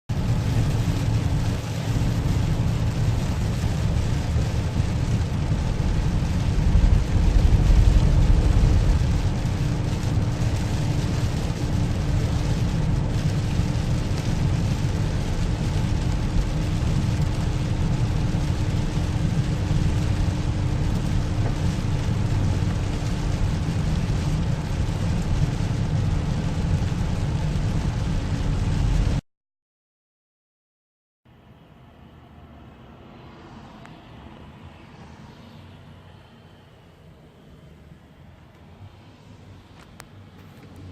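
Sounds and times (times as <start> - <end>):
downpour noise: 0.1 - 29.2
heavy low rumble: 0.1 - 29.2.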